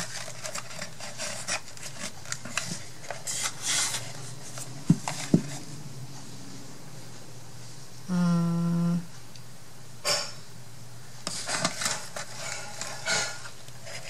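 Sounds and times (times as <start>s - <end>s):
paper crinkle: 0.0s - 5.6s, 11.2s - 14.0s
paper rustling and tapping: 0.0s - 5.6s, 11.2s - 14.0s
steady background hum: 0.0s - 14.0s.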